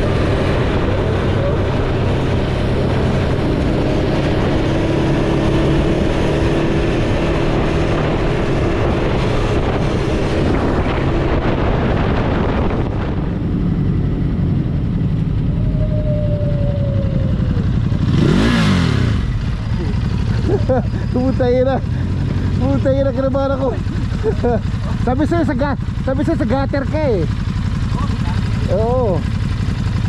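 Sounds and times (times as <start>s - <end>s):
wind noise: 0.0s - 19.9s
motorcycle engine running: 0.0s - 30.0s
road noise: 0.0s - 30.0s.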